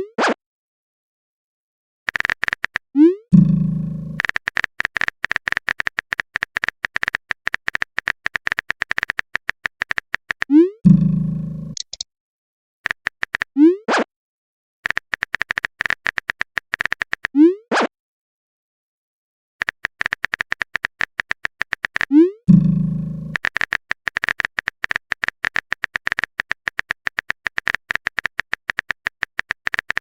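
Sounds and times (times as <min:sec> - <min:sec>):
rapid typing clicks: 0:02.1 - 0:02.9, 0:04.2 - 0:10.5, 0:11.7 - 0:12.0, 0:12.9 - 0:13.5, 0:14.8 - 0:17.3, 0:19.6 - 0:22.1, 0:23.3 - 0:30.0.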